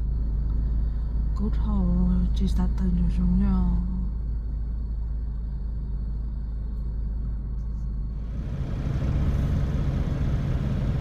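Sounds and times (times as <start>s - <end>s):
semi-truck low rumble: 0.0s - 11.0s.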